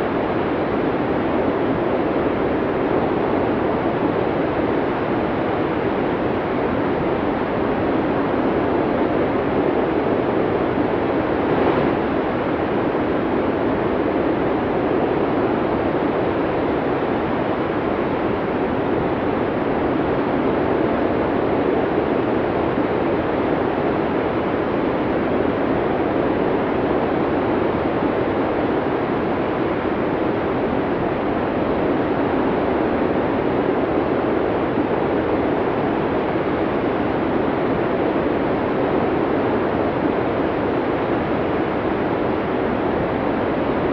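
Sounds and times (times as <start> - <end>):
snowstorm wind blowing: 0.0 - 43.9.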